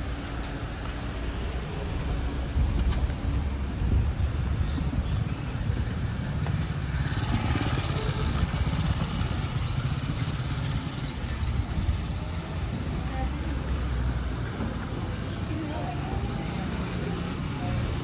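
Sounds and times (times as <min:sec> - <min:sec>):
vehicle engine rumble passing: 0:00.0 - 0:18.0
faint voices: 0:04.8 - 0:18.0.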